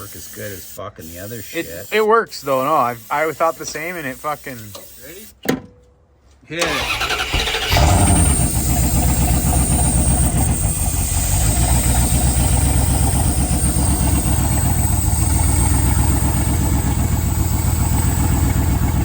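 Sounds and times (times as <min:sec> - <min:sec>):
old engine idling: 0:06.6 - 0:19.0.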